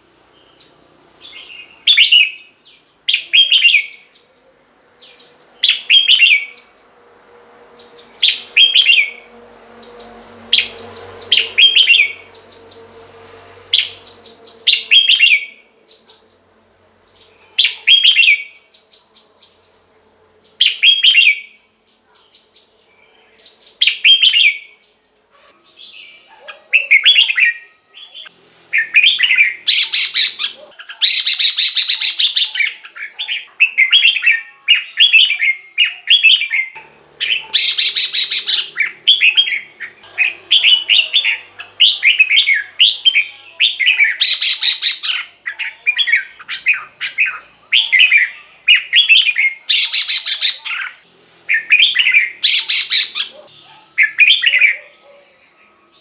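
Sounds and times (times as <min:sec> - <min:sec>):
bird warbling song: 0:00.4 - 0:04.4, 0:07.8 - 0:12.9, 0:13.7 - 0:16.2, 0:25.7 - 0:56.0.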